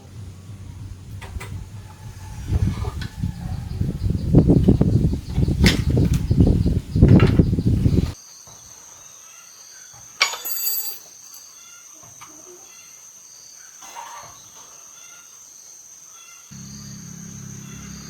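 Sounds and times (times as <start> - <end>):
low steady hum: 0.0 - 5.2, 16.5 - 18.0
birds chirping: 0.0 - 10.3, 11.2 - 18.0
insects droning: 0.0 - 18.0.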